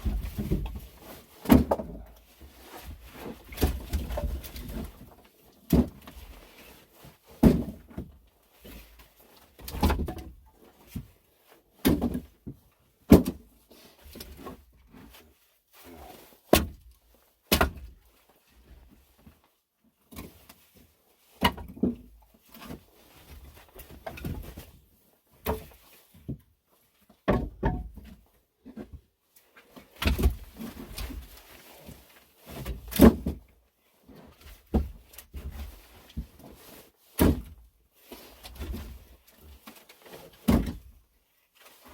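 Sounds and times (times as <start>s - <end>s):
firewood dropped with wooden thunks: 0.0s - 2.2s, 2.9s - 6.4s, 7.3s - 8.1s, 9.6s - 11.1s, 11.8s - 13.5s, 16.5s - 16.9s, 17.5s - 18.0s, 21.4s - 24.8s, 27.2s - 29.0s, 30.0s - 31.3s, 32.5s - 33.4s, 34.6s - 35.6s, 37.2s - 37.6s, 40.2s - 40.9s.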